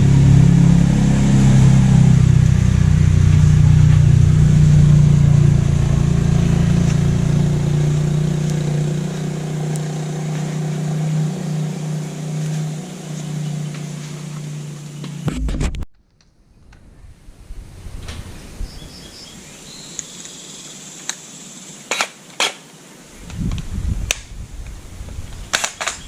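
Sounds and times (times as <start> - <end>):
small engine running: 0.0 - 15.6.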